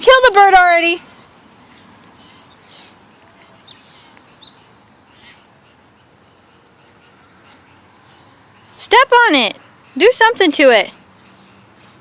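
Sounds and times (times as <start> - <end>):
faint bird chirps: 0.9 - 9.0.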